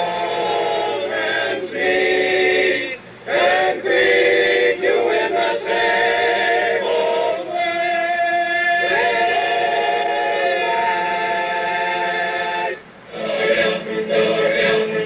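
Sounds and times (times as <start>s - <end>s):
men singing a cappella: 0.0s - 15.0s
music: 8.8s - 15.0s.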